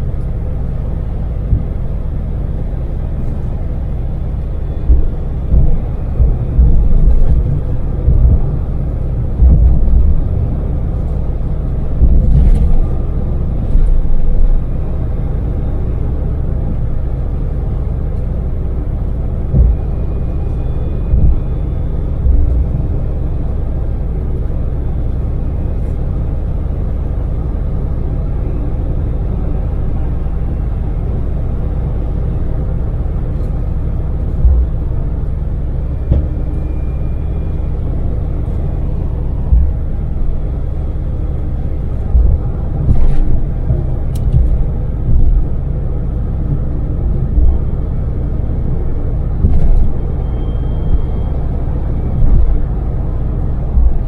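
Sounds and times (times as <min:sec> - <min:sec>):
van engine rumble inside cabin: 0:00.0 - 0:54.0
loud low thumps: 0:04.8 - 0:10.5, 0:11.9 - 0:14.7, 0:19.4 - 0:20.2, 0:21.0 - 0:22.9, 0:39.4 - 0:40.6, 0:42.0 - 0:45.8, 0:46.5 - 0:47.7, 0:50.8 - 0:54.0.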